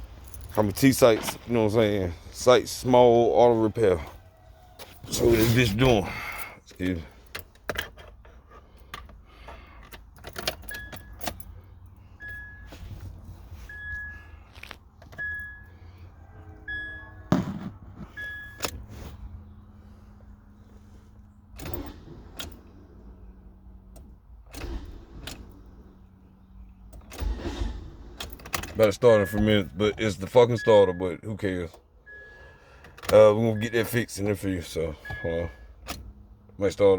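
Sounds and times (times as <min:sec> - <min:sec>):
keys jangling: 0:00.0 - 0:01.6, 0:07.1 - 0:13.2
car warning chime beeping: 0:10.6 - 0:14.4, 0:15.1 - 0:17.3, 0:18.0 - 0:18.9, 0:28.8 - 0:36.5.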